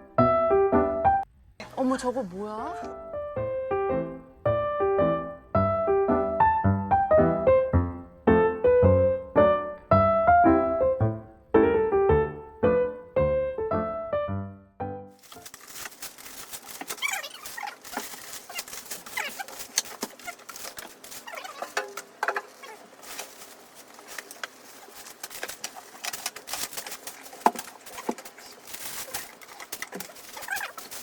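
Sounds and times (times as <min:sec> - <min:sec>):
light patter: 0:15.2 - 0:31.0.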